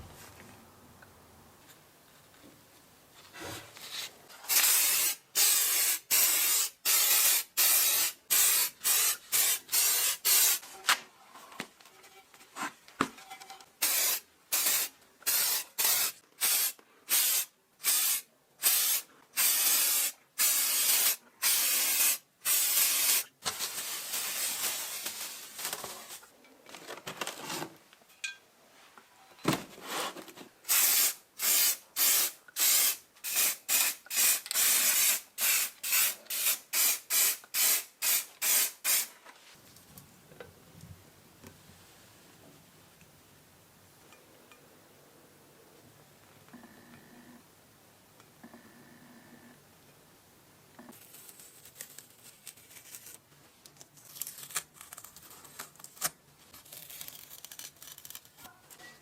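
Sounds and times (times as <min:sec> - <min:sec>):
pressurised spray hissing: 0:04.5 - 0:10.6, 0:13.8 - 0:25.4.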